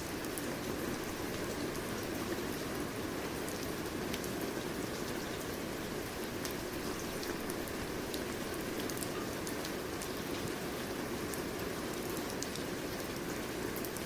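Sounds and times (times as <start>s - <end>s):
steady rain patter: 0.0s - 14.0s.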